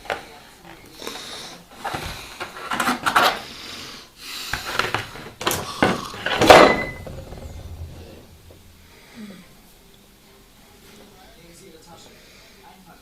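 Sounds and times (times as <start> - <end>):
hard objects clattering: 4.6 - 9.0.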